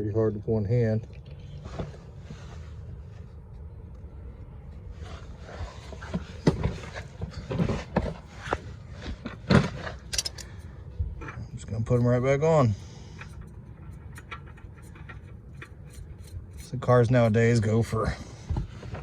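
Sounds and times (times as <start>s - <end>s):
low hum: 0.0s - 19.0s
tools and parts knocking and scraping: 5.8s - 19.0s.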